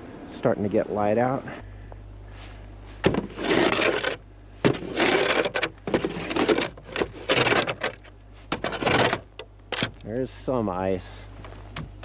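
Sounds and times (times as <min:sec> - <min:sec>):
scraping packed snow and ice: 0:02.3 - 0:09.3.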